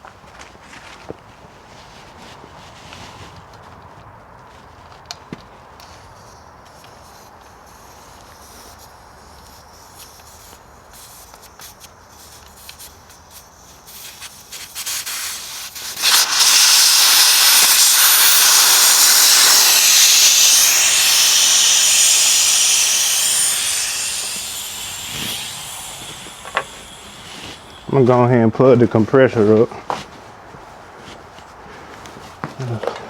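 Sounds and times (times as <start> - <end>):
compressed air hissing: 5.8 - 28.8.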